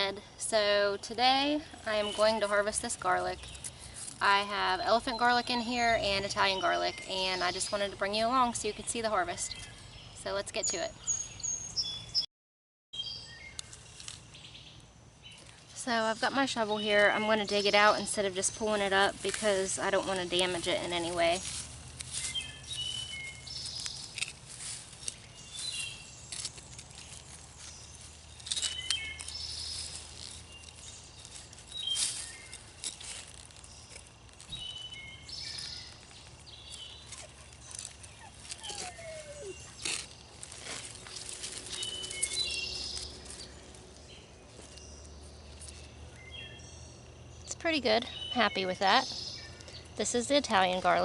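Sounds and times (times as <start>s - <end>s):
birds chirping: 0.0s - 12.3s, 13.0s - 51.0s
shovel scrapes and crunches: 18.6s - 43.8s
shovel digging into soil: 36.7s - 43.4s.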